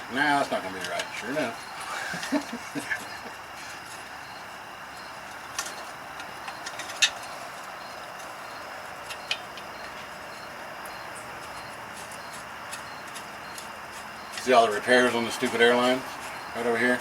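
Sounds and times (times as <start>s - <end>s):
steady shop hiss: 13.8s - 17.0s.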